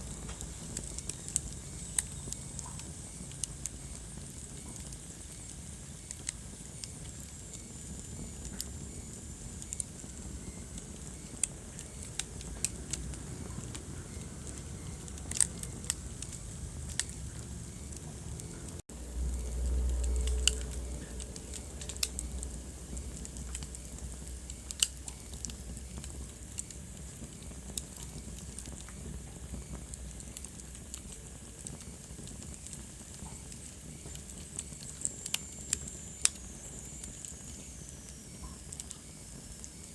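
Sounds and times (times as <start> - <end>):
wood fire crackling: 0.0 - 39.9
low rumble: 11.6 - 24.8.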